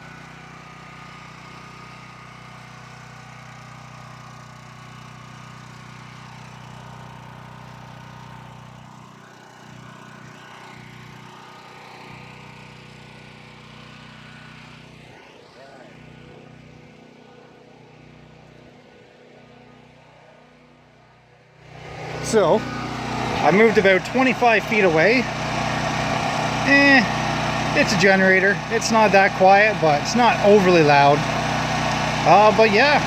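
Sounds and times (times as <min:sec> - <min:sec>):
portable generator engine hum: 0:06.6 - 0:33.0.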